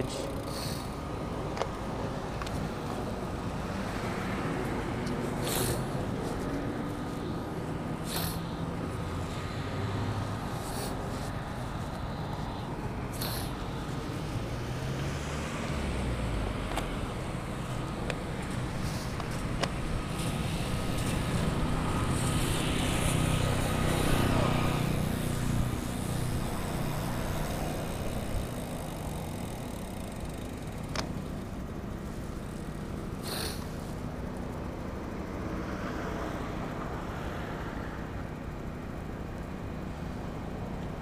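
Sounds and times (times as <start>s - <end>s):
road and wind noise: 0.0s - 41.0s
vehicle engine passing: 2.7s - 30.8s.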